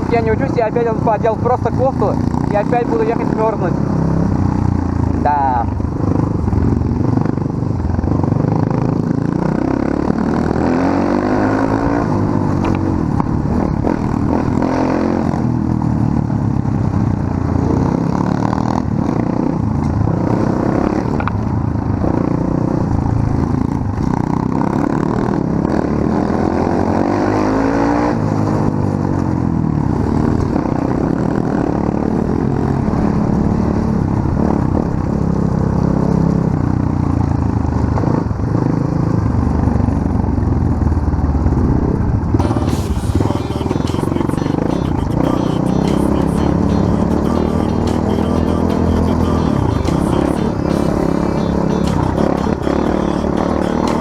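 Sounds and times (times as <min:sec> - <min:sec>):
small motorcycle engine revving: 0:06.0 - 0:15.8.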